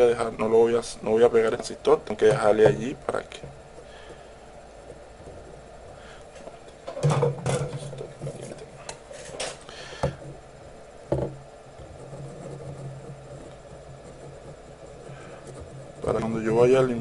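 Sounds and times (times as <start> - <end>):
steady low hum: 0.0 - 17.0
knocks and taps on workbench: 11.1 - 11.4.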